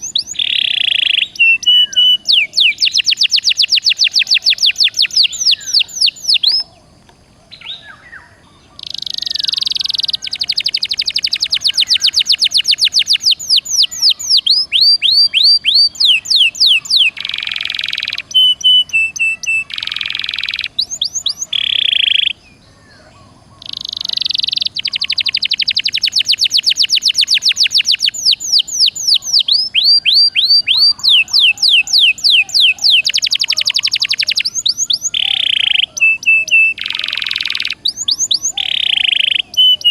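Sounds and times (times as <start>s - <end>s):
canary singing in trills: 0.0s - 6.9s, 7.5s - 39.9s.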